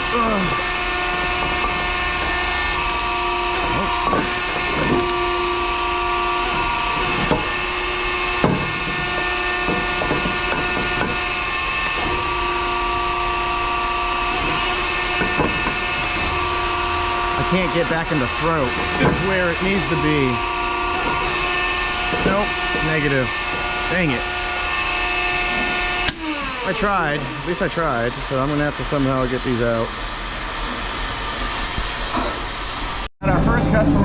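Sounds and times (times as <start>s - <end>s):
machine hiss and hum: 0.0s - 33.1s
sharp metallic knocks: 0.4s - 12.7s, 14.2s - 24.2s.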